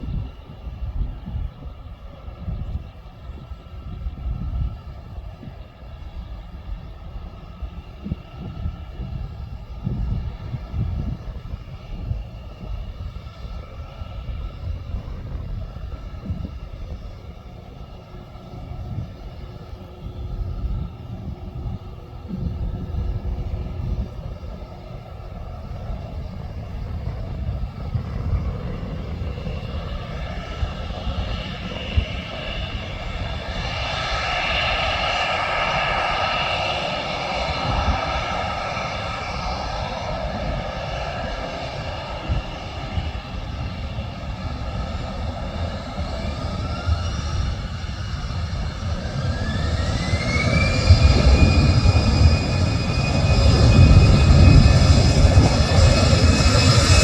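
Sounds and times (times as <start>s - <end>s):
airliner engines whining: 0.0s - 57.0s
low rumble: 18.8s - 57.0s.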